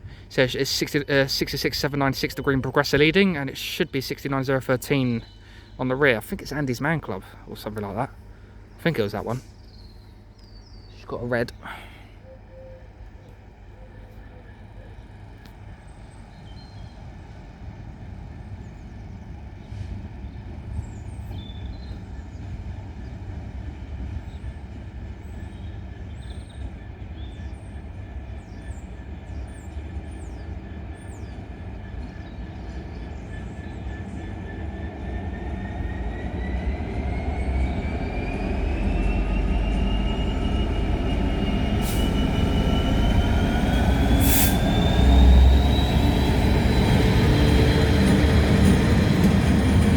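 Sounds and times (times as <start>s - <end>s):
birds chirping: 0.0s - 23.4s, 24.1s - 49.9s
diesel locomotive engine rumble: 0.0s - 49.9s
locomotive whine rising in pitch: 33.0s - 49.9s.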